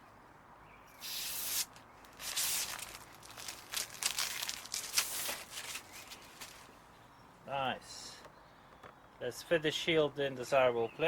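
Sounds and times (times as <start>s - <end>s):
plastic film tearing and crinkling: 1.0s - 6.6s.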